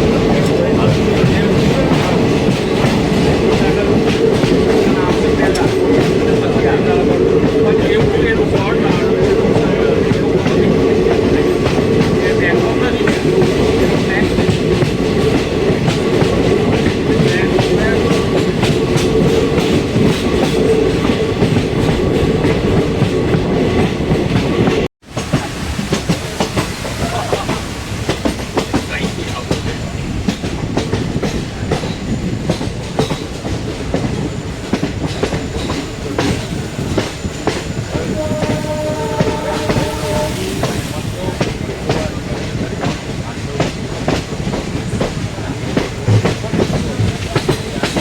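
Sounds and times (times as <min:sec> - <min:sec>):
train rumble: 0:00.0 - 0:48.0.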